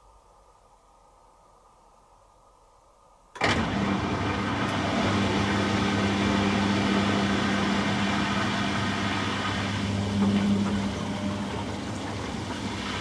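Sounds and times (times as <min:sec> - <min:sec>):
washing machine humming: 0:03.3 - 0:13.0.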